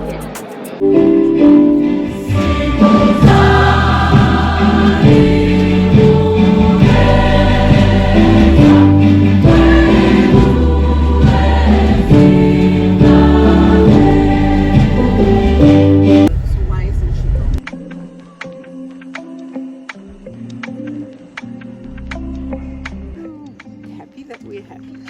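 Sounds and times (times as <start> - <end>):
gospel choir singing: 0.8 - 16.3
bass line: 1.0 - 17.6.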